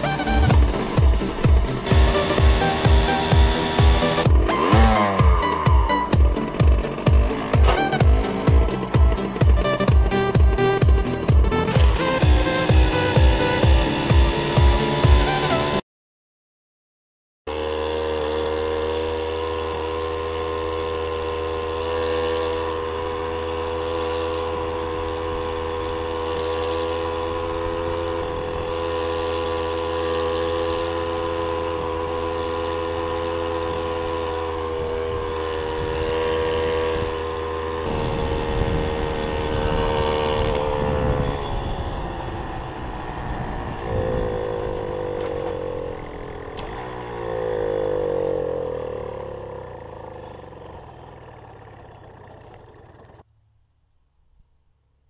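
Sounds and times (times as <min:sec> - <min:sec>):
moped engine running: 0:00.0 - 0:15.8, 0:17.5 - 0:53.6.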